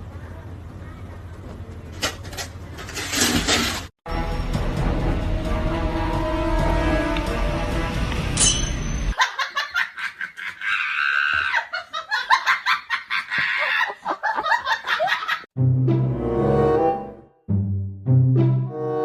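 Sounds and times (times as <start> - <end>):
background music: 4.1 - 9.1, 15.6 - 19.0
high-pitched laughter: 9.2 - 15.5.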